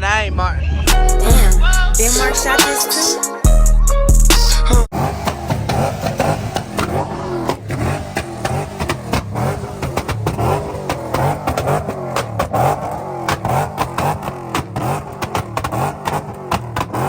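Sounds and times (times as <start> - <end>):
car engine revving: 0.0 - 2.7, 4.8 - 17.0
sharp exhaust cracks: 4.9 - 17.0.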